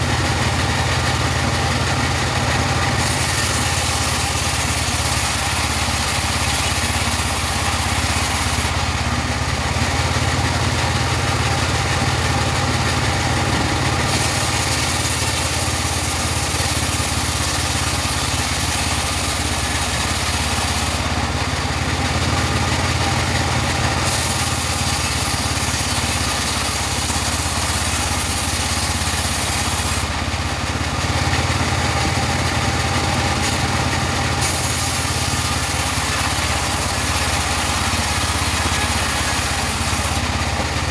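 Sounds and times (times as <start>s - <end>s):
engine drone: 0.0s - 30.6s, 31.2s - 40.9s
saw blade hissing through wood: 2.1s - 8.9s, 13.2s - 21.6s, 23.8s - 30.4s, 31.7s - 40.6s.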